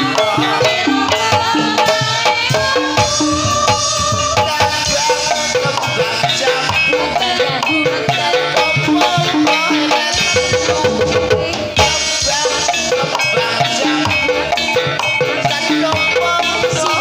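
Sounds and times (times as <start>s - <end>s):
gamelan percussion pattern: 0.0s - 17.0s.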